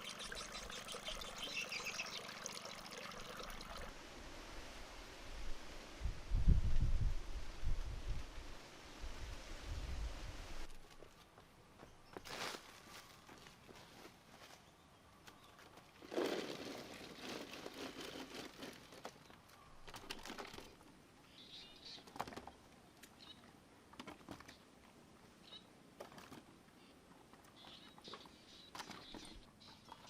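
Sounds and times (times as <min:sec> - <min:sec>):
high bird chirps: 0:00.0 - 0:02.5
rustling and crinkling: 0:10.7 - 0:20.9.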